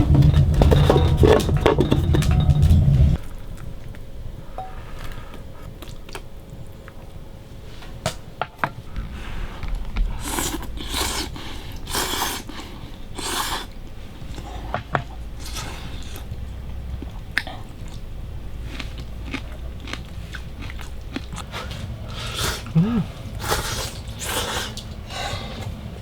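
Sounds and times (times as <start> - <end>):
person slurping noodles: 10.2 - 13.7, 22.1 - 25.6.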